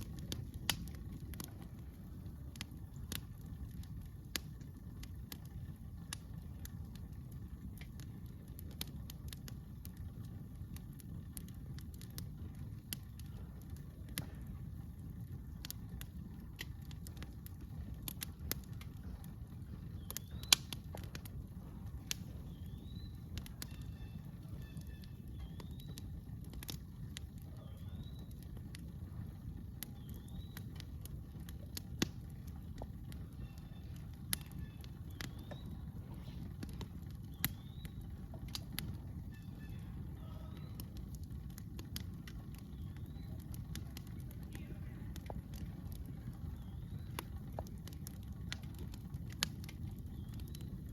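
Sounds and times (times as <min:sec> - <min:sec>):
campfire crackling and popping: 0:00.0 - 0:50.9
small bird chirping: 0:22.1 - 0:26.2, 0:29.8 - 0:30.8, 0:33.2 - 0:36.0, 0:37.2 - 0:38.1.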